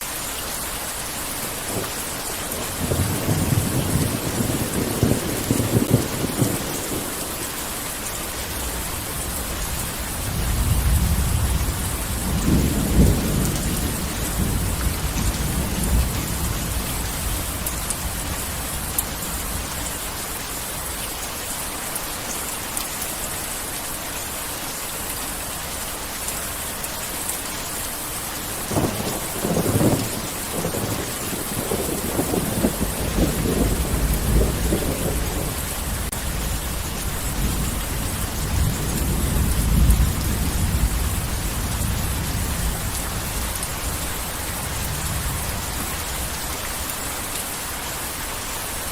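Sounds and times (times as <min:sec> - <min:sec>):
heavy rain: 0:00.0 - 0:48.9
thunder rumbling: 0:01.7 - 0:07.4, 0:08.5 - 0:19.8, 0:28.5 - 0:45.9.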